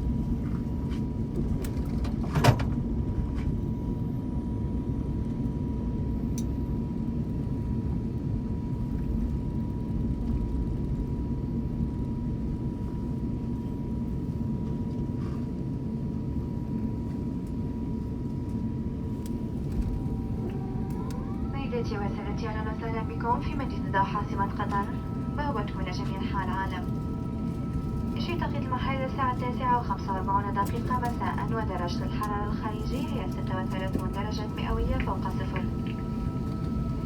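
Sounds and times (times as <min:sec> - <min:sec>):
aircraft cabin low rumble: 0:00.0 - 0:37.0.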